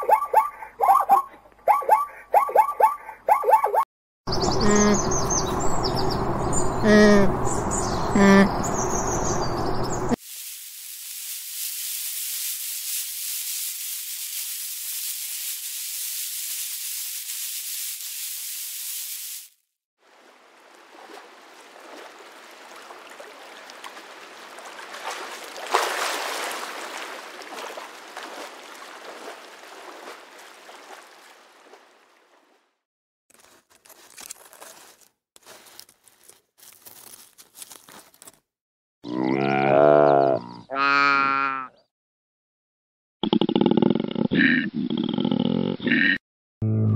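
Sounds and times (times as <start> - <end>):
water bubbling and trickling: 20.0 - 32.4.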